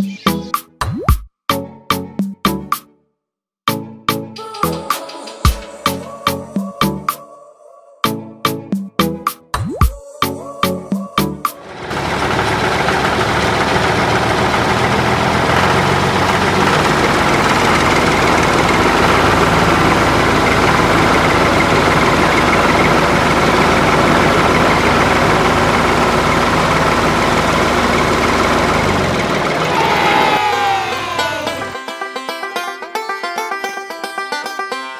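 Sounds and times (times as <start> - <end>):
tractor engine idling: 11.6 - 31.8.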